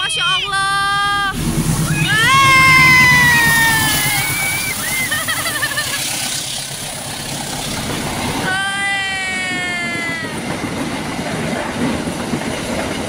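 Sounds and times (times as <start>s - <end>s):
high held falling tone: 0.0s - 9.3s
train wheels on track: 0.0s - 13.0s.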